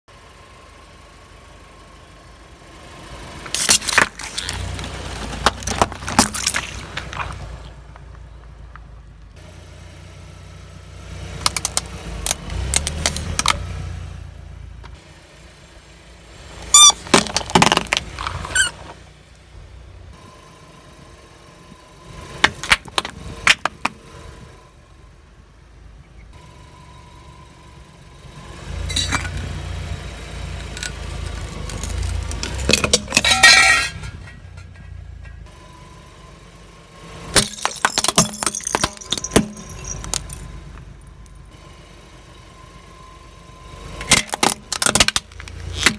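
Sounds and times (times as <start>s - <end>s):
car rumble: 0.0s - 45.9s
tyre crushing crunchy objects: 3.5s - 8.1s, 16.8s - 19.0s, 30.8s - 34.8s, 37.3s - 40.9s.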